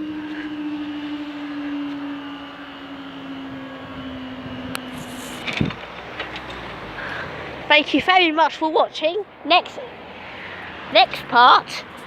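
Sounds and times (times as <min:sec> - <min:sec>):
train rolling noise: 0:00.0 - 0:07.7
electric train whine: 0:00.0 - 0:07.9, 0:09.3 - 0:12.0.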